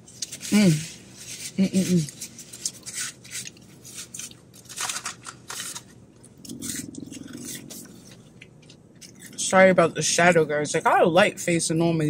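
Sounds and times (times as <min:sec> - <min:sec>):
crunching and chewing food: 0:01.4 - 0:09.8
closed-mouth hum: 0:06.0 - 0:10.9.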